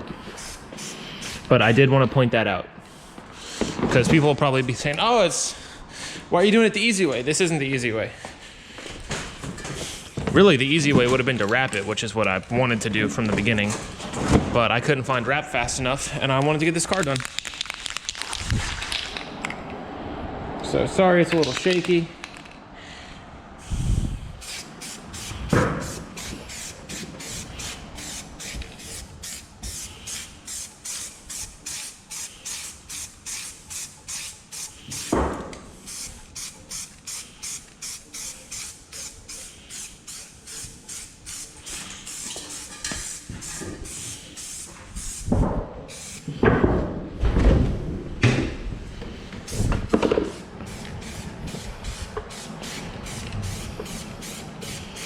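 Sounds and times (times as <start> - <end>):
spray can ball rattling: 16.8 - 19.3, 24.4 - 35.1, 35.8 - 45.3, 45.9 - 46.3, 49.5 - 55.0.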